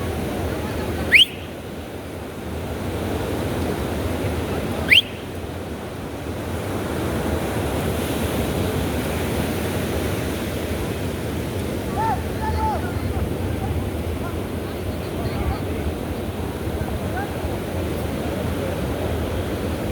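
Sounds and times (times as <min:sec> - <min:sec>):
ocean surf on beach: 0:00.0 - 0:19.9
sharp rising whistles: 0:01.1 - 0:01.6, 0:04.8 - 0:05.3.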